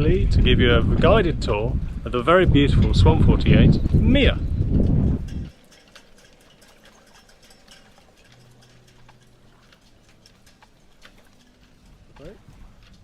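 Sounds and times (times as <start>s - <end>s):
faint irregular clicking: 4.8s - 13.0s.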